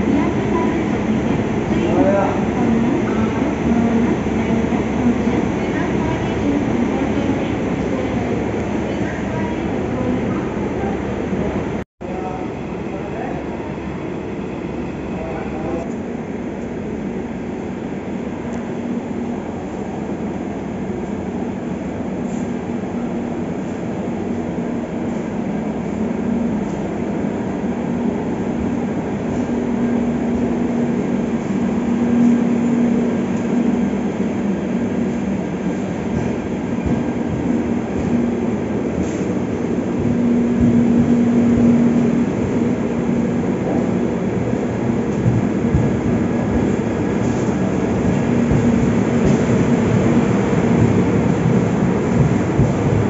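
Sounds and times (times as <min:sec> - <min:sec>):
train wheels rumbling on rails: 0:15.1 - 0:53.0.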